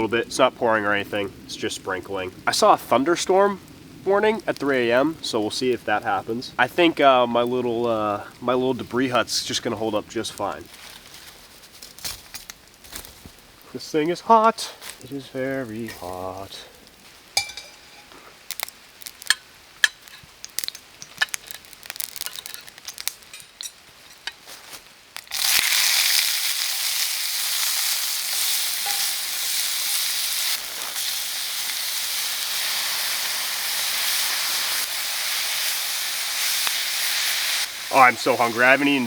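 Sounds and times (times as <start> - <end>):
food sizzling in a pan: 14.8 - 23.1, 24.3 - 39.0.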